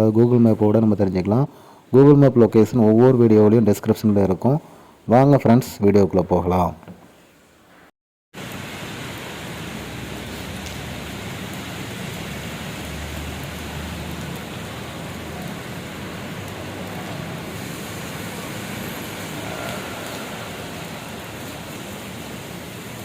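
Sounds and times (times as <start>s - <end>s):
heavy rain pouring: 8.4s - 23.0s.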